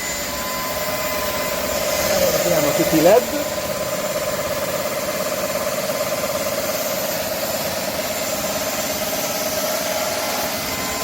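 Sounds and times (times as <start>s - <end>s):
stick vacuum running: 0.0s - 11.0s.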